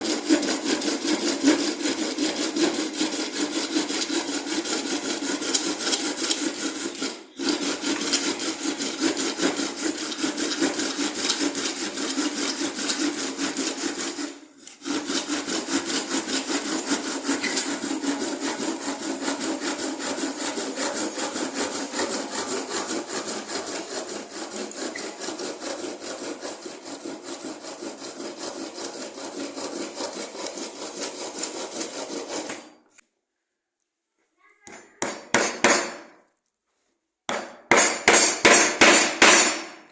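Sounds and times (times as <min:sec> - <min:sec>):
back-and-forth scraping strokes: 0:00.0 - 0:33.0.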